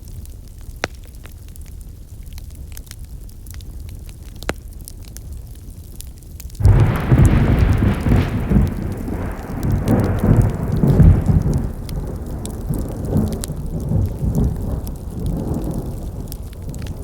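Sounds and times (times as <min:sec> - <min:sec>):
campfire crackling and popping: 0:00.0 - 0:17.0
loud low rumble: 0:06.6 - 0:12.8.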